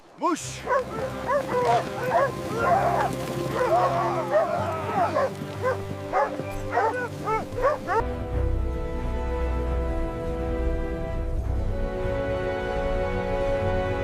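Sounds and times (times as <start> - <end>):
background music: 0.0 - 14.0
sled dogs barking and yelping: 0.5 - 8.1.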